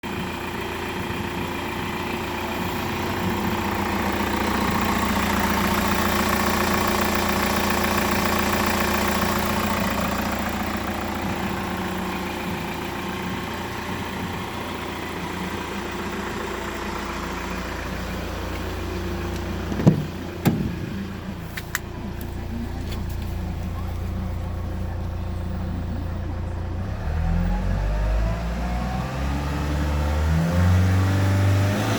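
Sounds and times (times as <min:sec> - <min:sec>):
diesel engine idling: 0:00.0 - 0:31.8
sharp knocks: 0:19.7 - 0:21.1.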